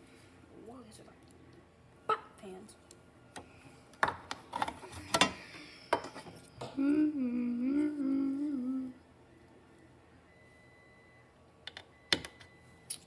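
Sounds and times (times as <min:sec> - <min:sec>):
person humming a tune: 0:06.6 - 0:09.0.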